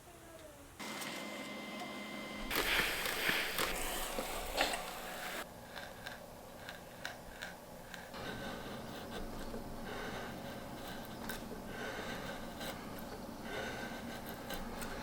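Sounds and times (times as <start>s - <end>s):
hand tool scraping wood: 2.5s - 5.4s.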